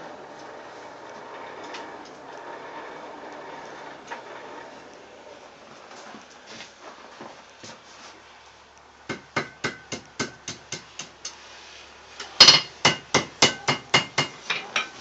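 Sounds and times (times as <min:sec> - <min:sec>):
hammer striking anvil: 0:09.1 - 0:11.4, 0:12.4 - 0:14.9.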